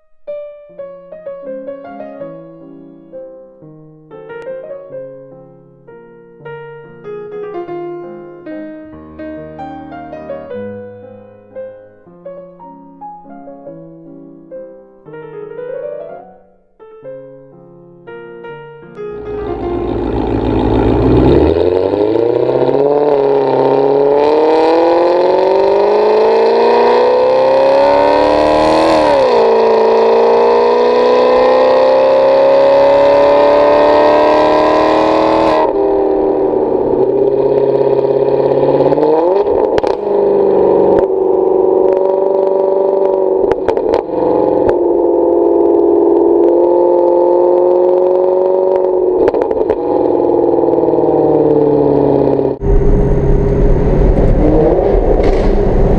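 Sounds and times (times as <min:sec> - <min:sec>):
exhaust cracks: 0:19.2 - 0:33.9, 0:34.6 - 0:55.9
car engine accelerating hard: 0:19.2 - 0:55.9.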